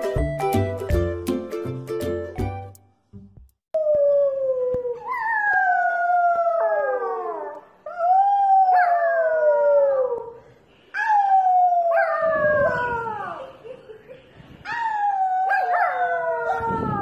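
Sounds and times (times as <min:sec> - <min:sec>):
puppy howling: 0:03.8 - 0:10.4, 0:14.7 - 0:17.0.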